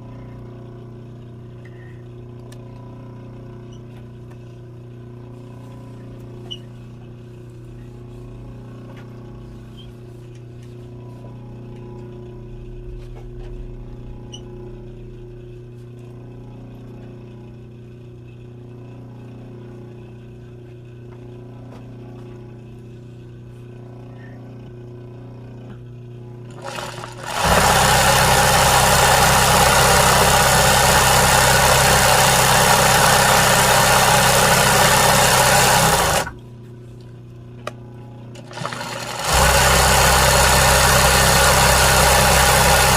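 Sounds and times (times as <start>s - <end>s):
sewing machine stitching: 26.5s - 36.4s, 38.4s - 42.9s.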